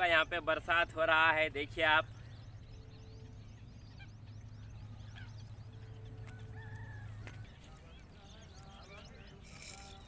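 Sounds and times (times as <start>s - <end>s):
birds chirping: 0.0s - 10.0s
steady low hum: 0.0s - 10.0s
wavering bird call: 1.9s - 10.0s.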